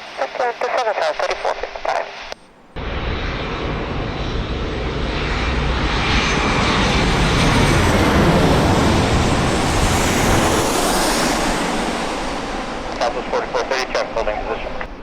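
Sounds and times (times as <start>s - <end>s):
jet engines roaring past: 0.0s - 15.0s.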